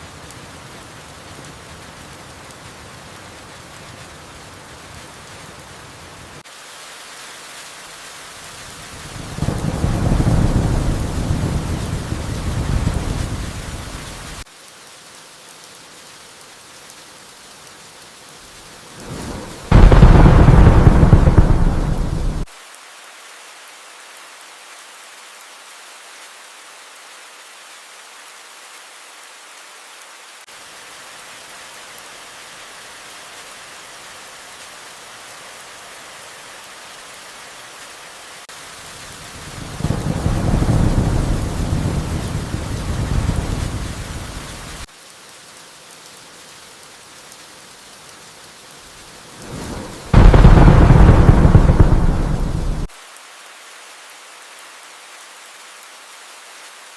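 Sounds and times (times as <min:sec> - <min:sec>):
steady rain: 0:00.0 - 0:56.9
thunder rumbling: 0:09.2 - 0:14.4, 0:19.0 - 0:22.5, 0:39.6 - 0:44.8, 0:49.4 - 0:52.9
loud thunderclap: 0:09.4 - 0:14.0, 0:19.1 - 0:22.5, 0:39.7 - 0:44.5, 0:49.4 - 0:52.9.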